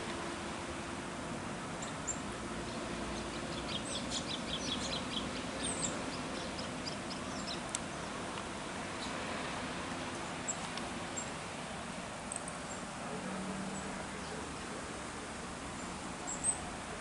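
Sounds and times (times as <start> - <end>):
steady outdoor hiss: 0.0 - 17.0
small birds chirping: 1.8 - 8.3, 8.9 - 9.3, 9.9 - 11.4, 12.3 - 13.0, 13.7 - 14.8, 15.6 - 16.8.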